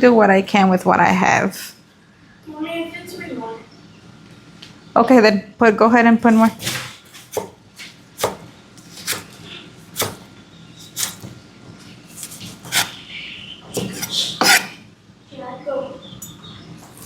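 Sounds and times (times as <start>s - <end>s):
knife chopping on cutting board: 6.4s - 9.4s, 10.0s - 11.4s, 12.2s - 13.0s, 13.8s - 14.8s.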